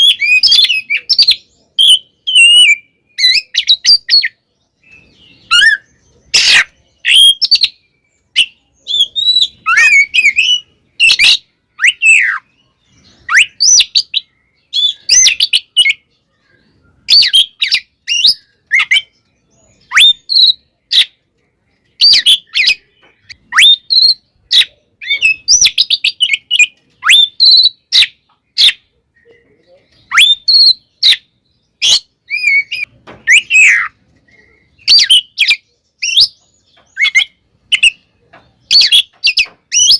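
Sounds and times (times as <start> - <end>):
songbird whistling song: 0.0 - 39.9.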